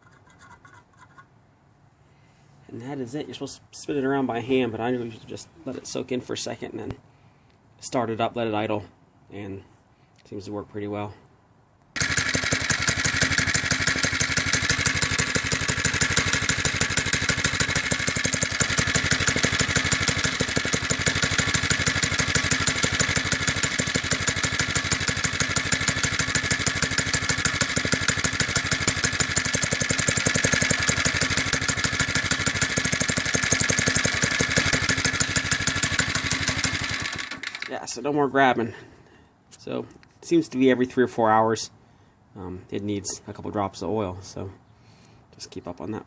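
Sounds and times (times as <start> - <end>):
small engine idling: 12.0 - 37.7.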